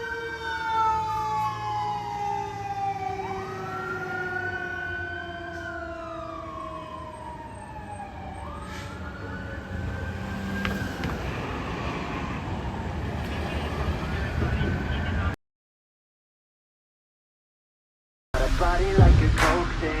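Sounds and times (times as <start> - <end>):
fire engine siren: 0.0 - 15.4.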